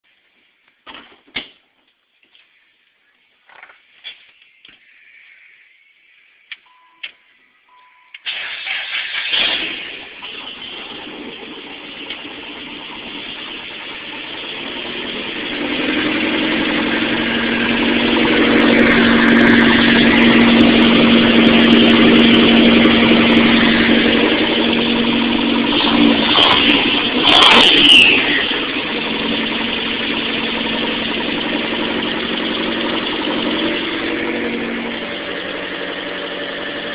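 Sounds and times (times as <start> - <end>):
car engine revving and idling: 9.1 - 36.9.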